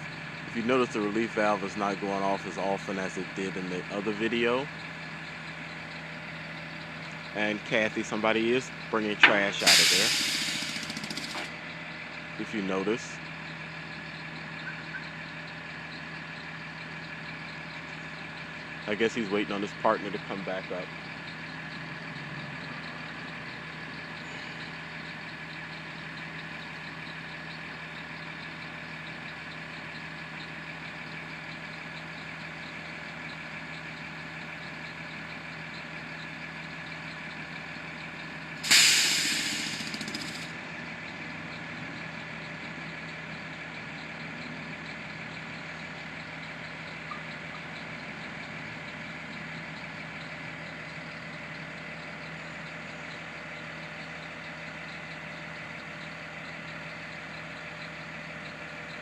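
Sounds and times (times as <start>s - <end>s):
truck engine idling: 0.0s - 59.0s
relief valve hissing: 9.4s - 11.5s, 38.6s - 40.4s.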